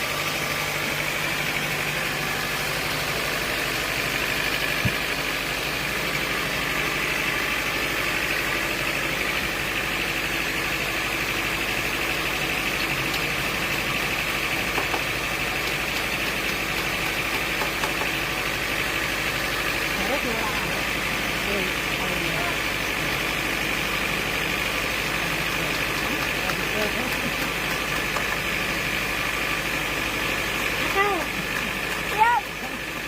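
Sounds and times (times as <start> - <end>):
sawmill machinery drone: 0.0 - 33.0.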